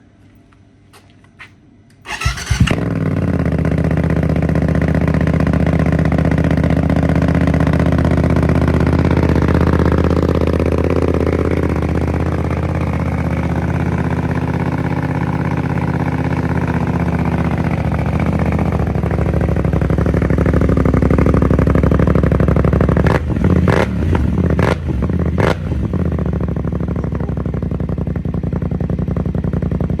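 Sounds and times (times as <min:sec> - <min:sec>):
motorcycle engine cranking and starting: 0:01.9 - 0:23.8
loud motorcycle engine idling: 0:02.1 - 0:30.0.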